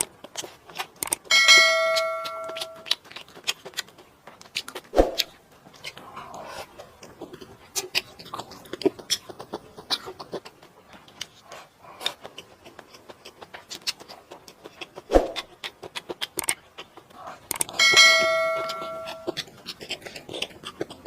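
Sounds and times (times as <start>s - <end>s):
wet chewing and smacking: 0.0s - 21.0s
metal utensil ringing on dish: 1.3s - 2.8s, 17.8s - 19.4s.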